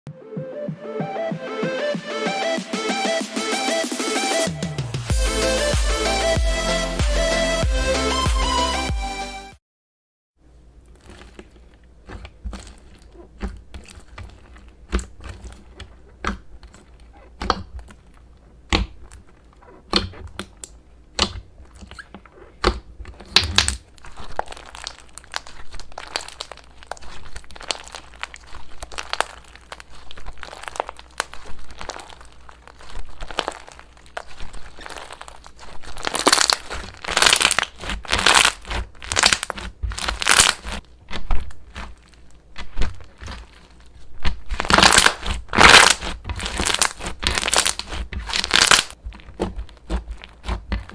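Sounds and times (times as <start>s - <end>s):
slime squishing: 10.5s - 50.9s.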